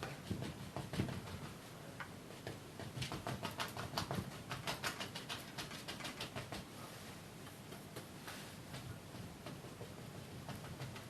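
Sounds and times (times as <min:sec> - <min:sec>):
paintbrush flicking on canvas: 0:02.3 - 0:06.7.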